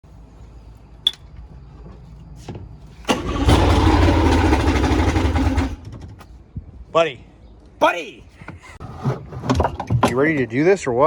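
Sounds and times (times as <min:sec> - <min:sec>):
engine starting and running: 0:02.9 - 0:06.3.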